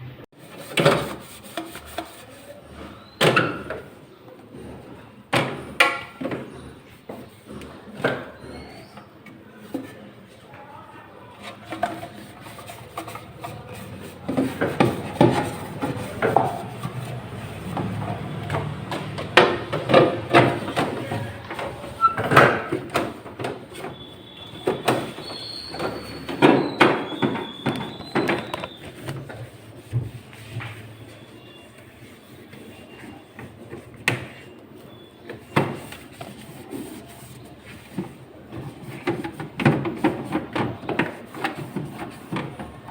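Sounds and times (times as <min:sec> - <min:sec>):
plastic shelves knocking: 0:11.8 - 0:29.0
high squeaks: 0:23.9 - 0:29.0.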